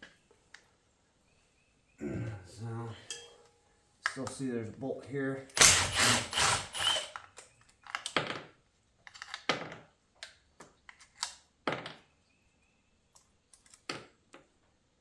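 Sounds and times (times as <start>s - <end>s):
metal tools clicking and knocking: 5.5s - 12.0s.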